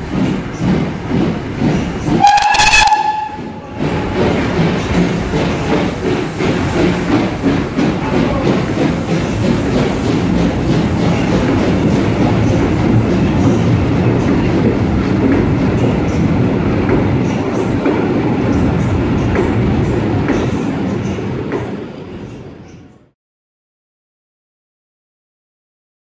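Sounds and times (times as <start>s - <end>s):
wheels clacking over rail joints: 0.0s - 21.8s
train rumble: 0.0s - 23.2s.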